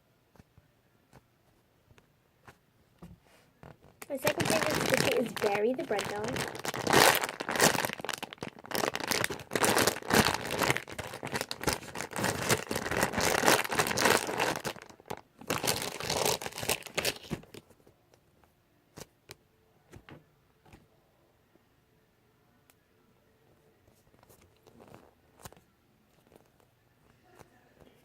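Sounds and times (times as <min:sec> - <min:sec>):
squishy toy crinkling: 0:03.6 - 0:17.7.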